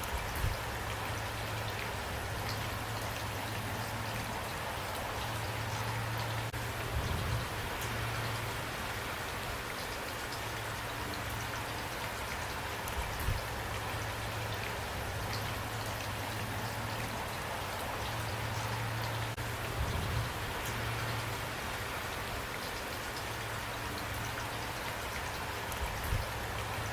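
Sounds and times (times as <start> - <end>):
rain drops pattering: 0.0 - 26.9.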